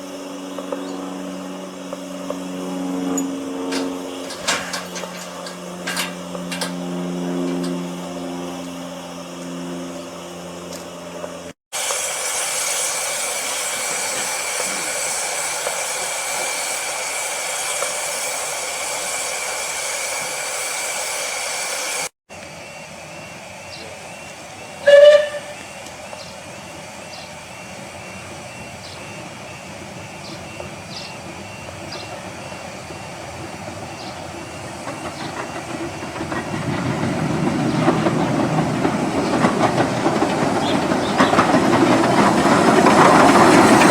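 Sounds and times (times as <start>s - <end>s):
steam locomotive hissing: 0.0s - 9.4s, 11.4s - 43.9s
low rumble of train: 0.0s - 43.9s
train whistle toot: 24.7s - 25.9s.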